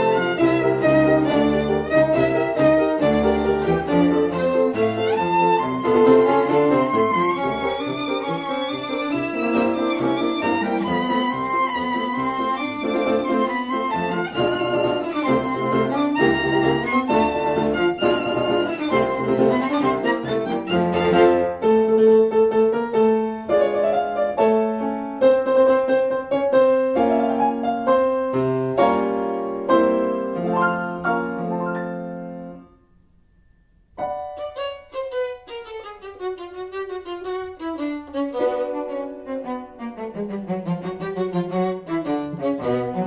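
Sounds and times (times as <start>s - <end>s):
violin playing: 0.0s - 21.8s, 34.0s - 43.0s
piano accompaniment: 0.0s - 43.0s.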